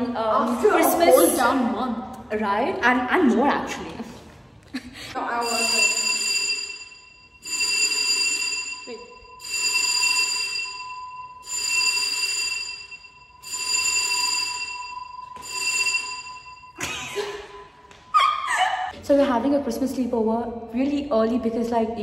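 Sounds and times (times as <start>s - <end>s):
steady beep-like tone: 5.2s - 17.8s
electronic ringing tone: 5.4s - 16.8s.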